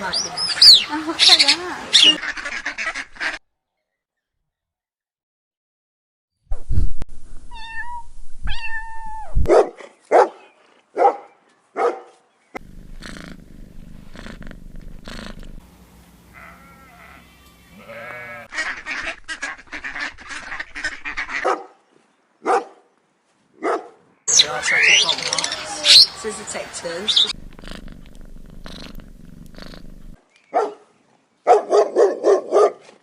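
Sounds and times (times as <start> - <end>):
wavering animal calls: 16.2 - 21.4, 24.3 - 30.2
short rapid animal calls: 24.3 - 29.8.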